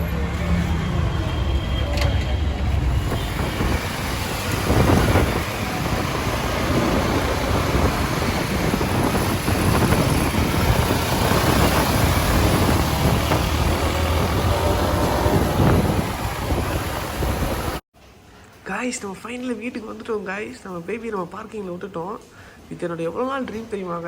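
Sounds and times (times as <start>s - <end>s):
engines rumbling: 0.0s - 17.8s
road noise: 0.0s - 17.8s
wind rush: 2.6s - 17.8s.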